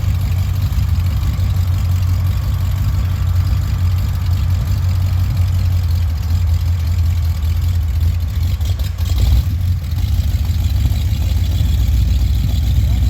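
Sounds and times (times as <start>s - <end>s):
diesel locomotive idling: 0.0s - 13.0s.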